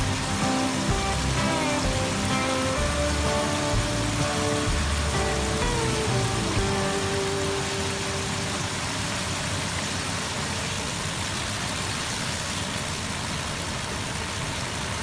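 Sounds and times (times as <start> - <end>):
sauce bubbling and sizzling: 0.0 - 9.7.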